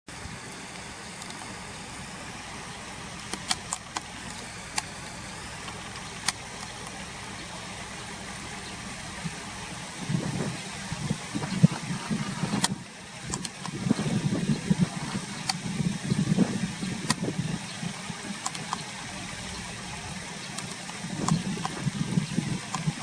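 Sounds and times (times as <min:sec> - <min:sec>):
car engine idling: 0:00.3 - 0:23.0
sharp clicks: 0:00.5 - 0:01.6, 0:03.1 - 0:07.0, 0:10.0 - 0:23.0.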